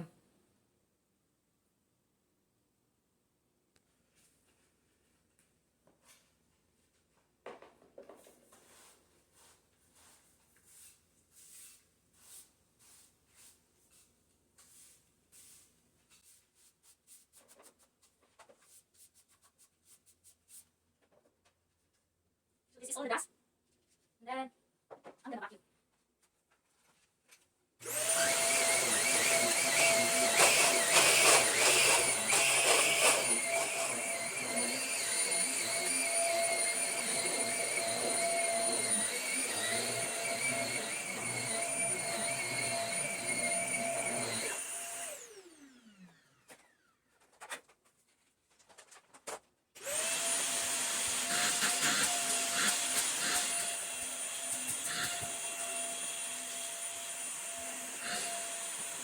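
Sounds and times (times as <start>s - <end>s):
vacuum cleaner running with whine: 27.8s - 46.9s, 49.8s - 59.0s.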